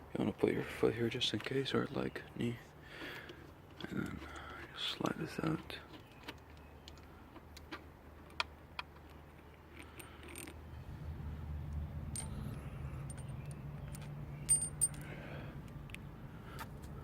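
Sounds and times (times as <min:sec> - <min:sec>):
low steady hum: 0:06.9 - 0:17.0
metallic clicks and clinks: 0:12.1 - 0:15.1.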